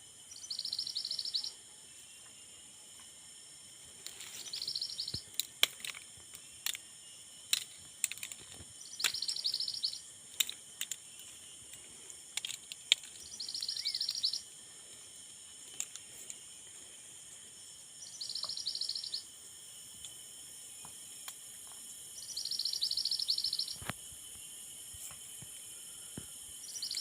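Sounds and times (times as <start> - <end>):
steady high-pitched hiss: 0.0 - 27.0
sharp short bird chips: 8.8 - 10.1
bird high rapid trill: 13.2 - 14.4, 18.0 - 19.3.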